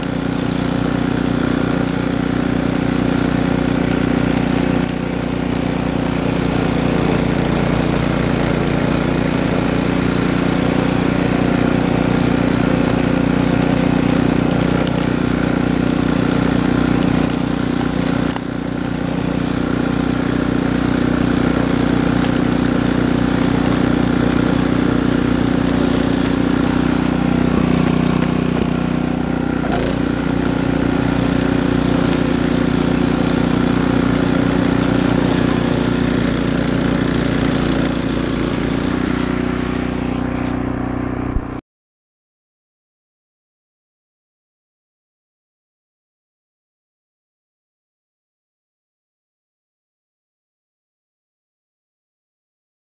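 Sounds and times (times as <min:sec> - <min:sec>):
small gasoline engine running: 0:00.0 - 0:41.6.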